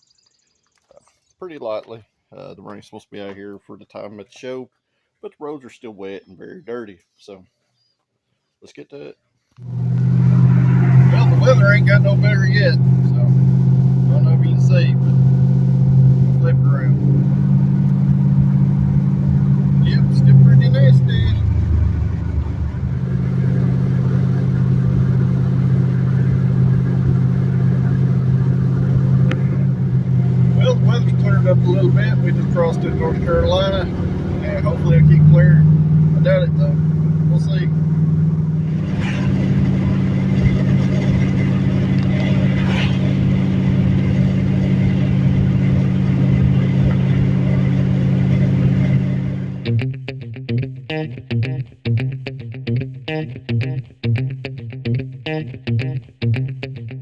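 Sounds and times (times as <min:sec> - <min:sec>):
car engine droning: 0:09.6 - 0:49.8.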